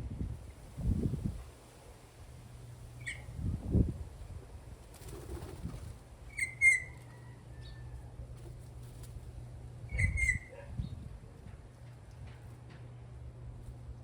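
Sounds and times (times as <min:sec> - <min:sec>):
steady low hum: 0:07.1 - 0:14.0.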